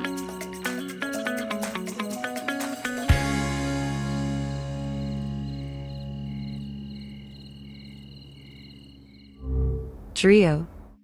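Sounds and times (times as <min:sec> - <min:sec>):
deep musical hit: 0:09.4 - 0:10.3.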